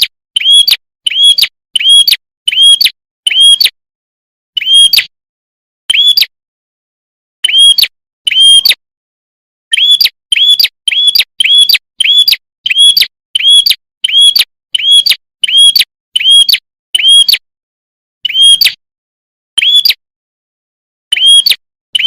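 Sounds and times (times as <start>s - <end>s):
bird chirping: 0.0s - 3.8s, 4.6s - 5.1s, 5.9s - 6.4s, 7.4s - 8.8s, 9.7s - 17.4s, 18.2s - 18.8s, 19.6s - 20.0s, 21.1s - 22.0s.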